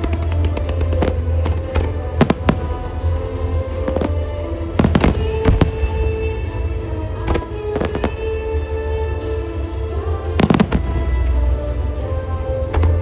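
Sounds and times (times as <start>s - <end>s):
fireworks bursting: 0.0s - 8.5s, 10.3s - 11.4s
music over loudspeakers: 0.0s - 13.0s.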